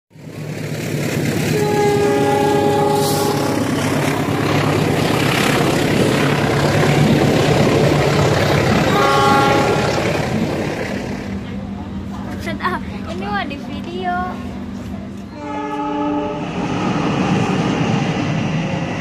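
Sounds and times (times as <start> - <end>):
low diesel engine hum: 0.1 - 19.0
train passing rumble: 0.1 - 19.0
diesel locomotive horn: 1.5 - 4.5, 6.5 - 7.4, 8.8 - 10.4, 15.3 - 17.8.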